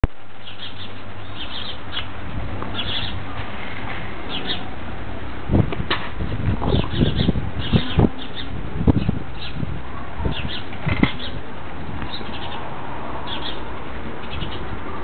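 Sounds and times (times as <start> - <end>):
small birds chirping: 0.4 - 3.2, 4.2 - 4.7, 6.3 - 14.8.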